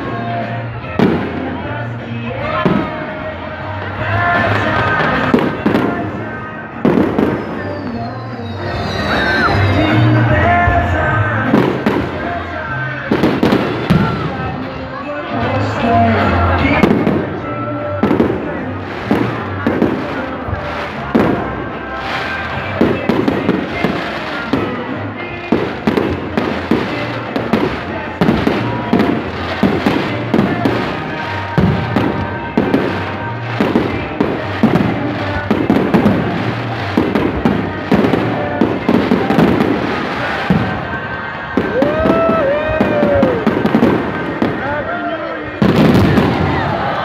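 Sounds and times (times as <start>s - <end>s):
fireworks bangs and crackles: 0.0s - 47.0s
music playing: 0.0s - 47.0s.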